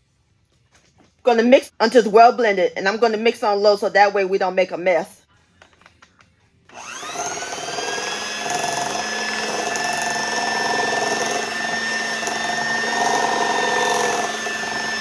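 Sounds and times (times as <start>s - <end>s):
electric hand mixer whining: 6.7s - 15.0s.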